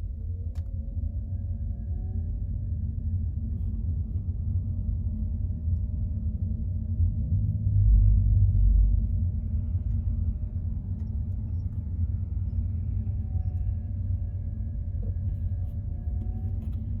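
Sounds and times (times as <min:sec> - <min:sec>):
car engine and tyre noise: 0:04.8 - 0:17.0.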